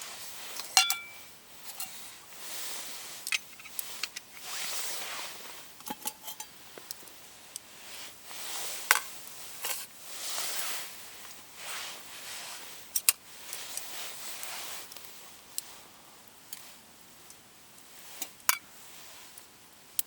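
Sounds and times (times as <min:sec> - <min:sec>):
soft rustling: 0:00.0 - 0:06.9, 0:07.7 - 0:15.9
cookware and utensils clinking: 0:00.6 - 0:02.0, 0:03.2 - 0:04.5, 0:05.8 - 0:06.5.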